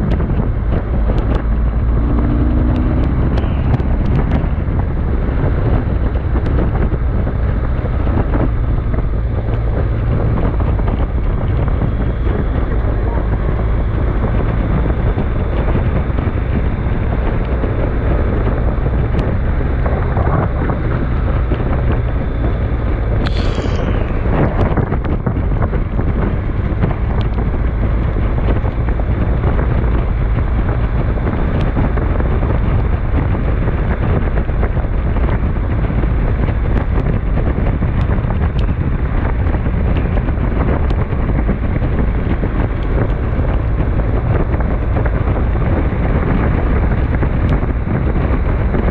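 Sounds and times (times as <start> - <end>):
storm wind buffeting microphone: 0.0 - 48.9
high falling sound: 23.2 - 24.6.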